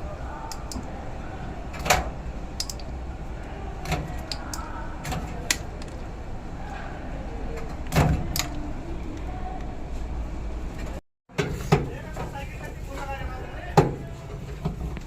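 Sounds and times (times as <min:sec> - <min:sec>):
metal parts and tools clinking: 0:02.6 - 0:03.0.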